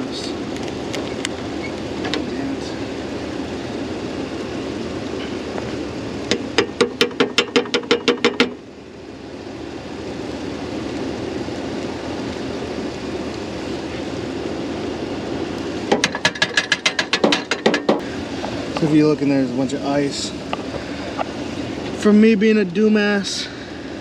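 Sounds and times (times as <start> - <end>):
pickup truck idling: 0.0 - 24.0
rapid sharp clicks: 15.9 - 18.0.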